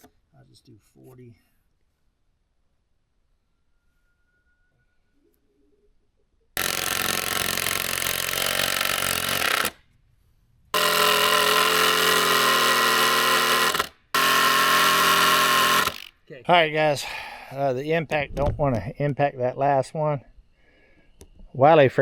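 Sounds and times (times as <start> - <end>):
impact driver hammering: 6.6 - 9.8, 10.8 - 16.1.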